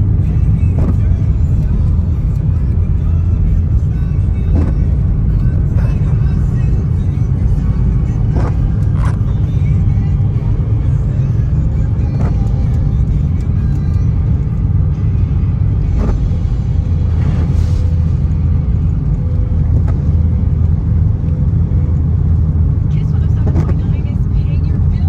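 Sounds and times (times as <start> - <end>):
car engine and tyres rumbling: 0.0 - 25.0
short rushing hiss: 17.1 - 18.5.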